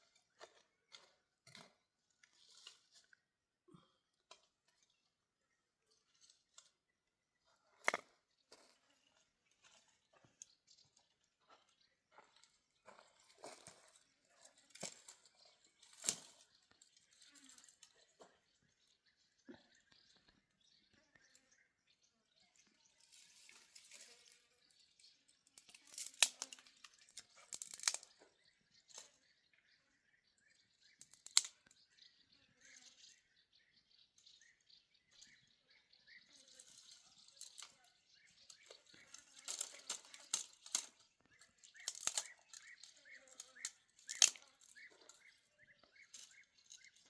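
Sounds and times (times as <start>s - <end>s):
dry wheat stalks crunching: 12.8s - 18.2s, 23.0s - 28.3s, 36.3s - 47.0s.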